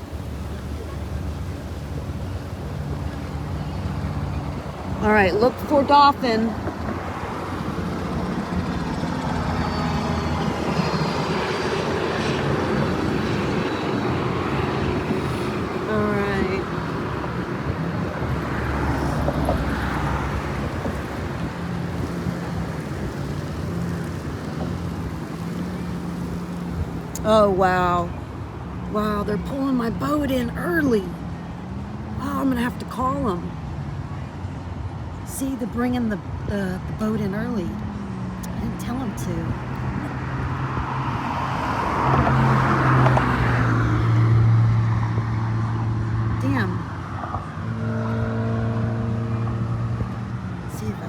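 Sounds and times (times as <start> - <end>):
engine humming: 0.0 - 34.3
rushing water: 0.0 - 35.3.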